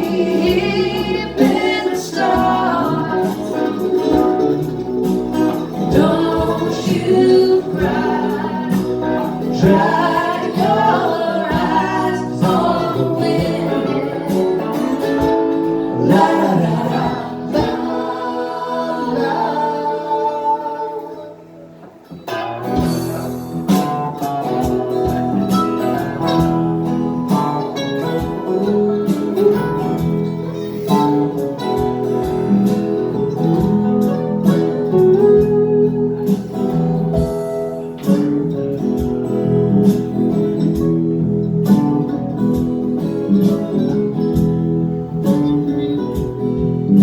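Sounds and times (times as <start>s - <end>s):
held vocal chord: 0.0s - 21.8s
acoustic guitar strumming: 0.0s - 47.0s.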